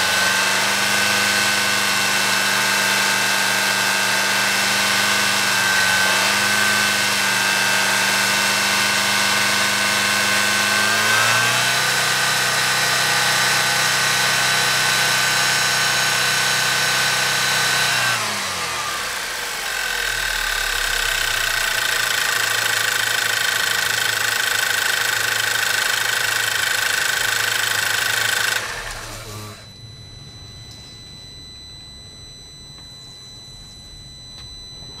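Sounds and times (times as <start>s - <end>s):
car engine high whine: 0.0s - 35.0s
engine winding-down noise: 0.0s - 35.0s
faint steady hum: 29.6s - 35.0s.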